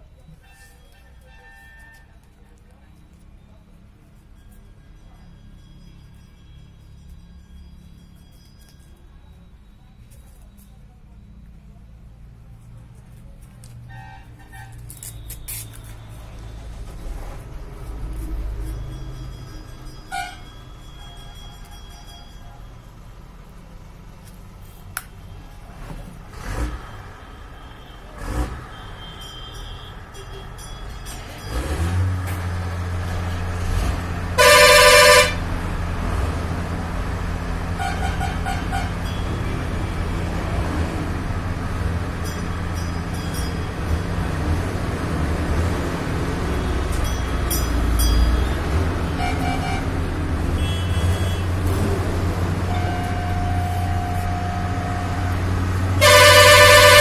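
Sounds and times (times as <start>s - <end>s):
car horn: 0.4s - 2.2s, 13.9s - 16.3s, 20.1s - 20.5s, 34.3s - 35.6s, 37.8s - 39.1s, 48.4s - 57.0s.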